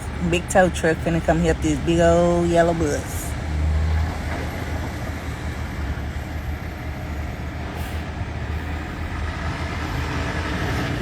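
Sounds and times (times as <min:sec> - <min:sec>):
large vehicle engine rumbling: 0:00.0 - 0:11.0
street traffic: 0:00.0 - 0:11.0.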